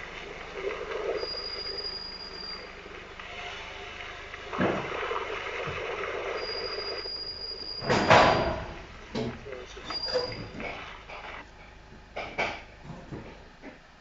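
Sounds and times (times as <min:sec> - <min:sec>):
high-pitched brake squeal: 0:01.0 - 0:04.3, 0:06.0 - 0:09.0, 0:09.6 - 0:11.4.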